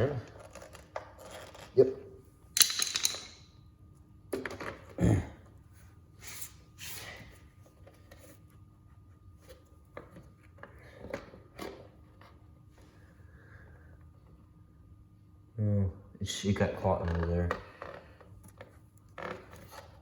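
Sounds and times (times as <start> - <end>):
parts knocking and clattering: 2.6 - 3.4.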